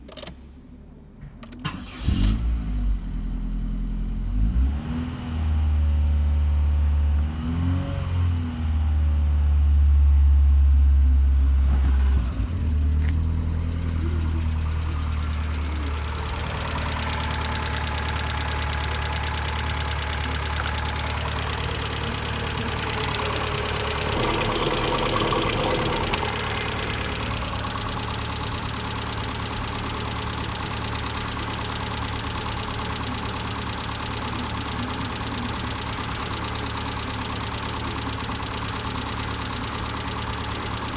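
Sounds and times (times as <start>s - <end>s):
car engine starting and revving: 1.5s - 9.2s, 11.3s - 40.9s
car engine idling: 9.1s - 40.9s.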